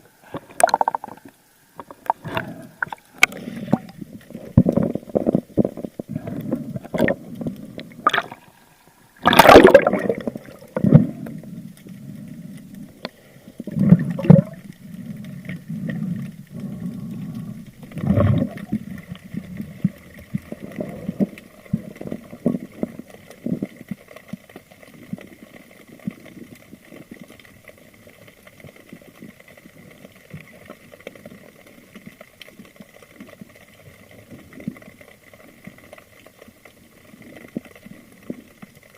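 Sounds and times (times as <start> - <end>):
faint steady whine: 0.0 - 38.9
muffled water sloshing underwater: 0.0 - 38.9
loud splash: 9.2 - 10.6.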